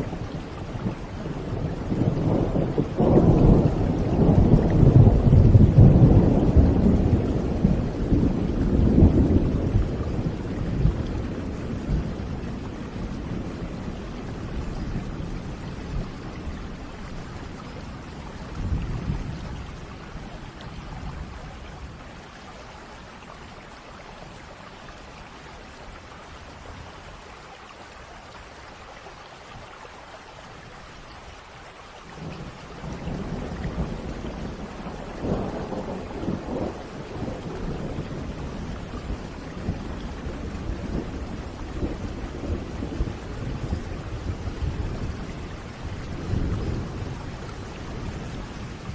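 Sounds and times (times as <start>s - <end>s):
rolling thunder: 0.0s - 22.0s, 32.2s - 48.9s
steady rain: 0.0s - 48.9s.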